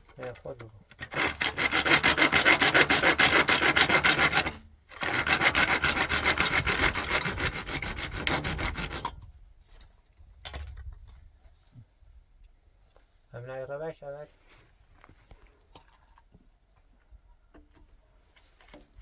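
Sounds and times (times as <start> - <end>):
hand saw cutting: 0.2 - 9.2.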